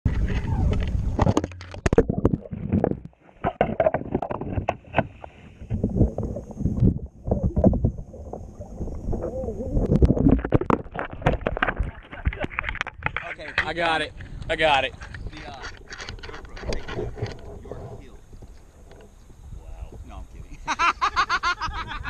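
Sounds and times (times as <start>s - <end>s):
kayak gear knocks and bumps: 0.1s - 6.1s, 9.9s - 17.7s.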